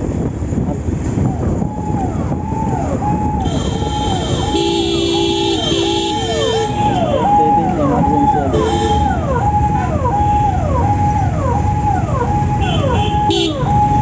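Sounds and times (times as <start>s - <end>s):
traffic rumble: 0.0s - 14.0s
emergency vehicle siren: 0.9s - 14.0s
car horn honks: 3.4s - 7.3s, 8.2s - 9.2s, 12.6s - 13.7s.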